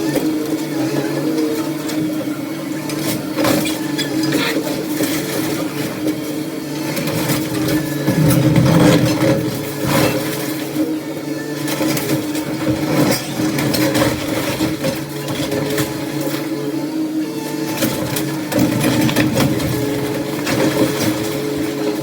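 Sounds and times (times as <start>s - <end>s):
demolition machine engine running: 0.0s - 22.0s
debris knocking and scraping: 11.6s - 16.5s, 17.7s - 22.0s.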